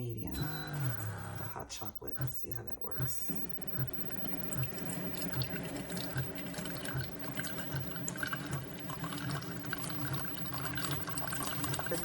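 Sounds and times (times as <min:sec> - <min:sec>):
low regular pulsing: 0:00.0 - 0:12.0
coffee streaming into cup: 0:03.3 - 0:12.0.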